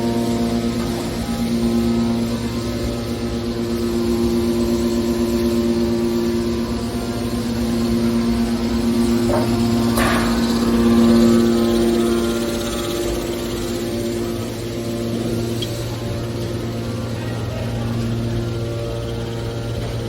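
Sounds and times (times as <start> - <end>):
baler machine humming: 0.0 - 20.0
metal clanks: 9.2 - 11.0.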